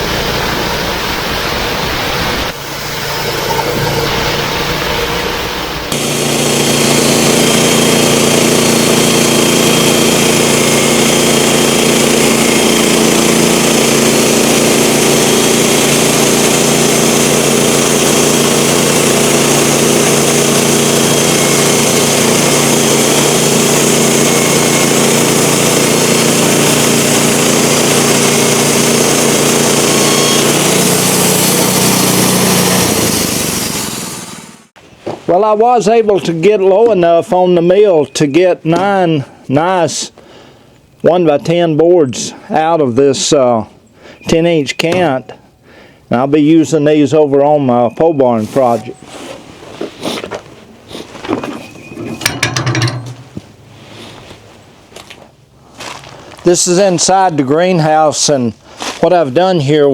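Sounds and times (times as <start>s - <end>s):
sawmill blade sawing wood: 0.0s - 37.5s, 47.4s - 53.4s.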